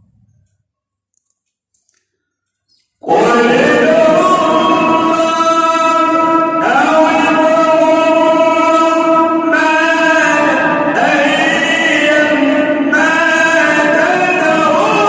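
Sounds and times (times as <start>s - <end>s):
man chanting melodically: 3.0s - 15.0s.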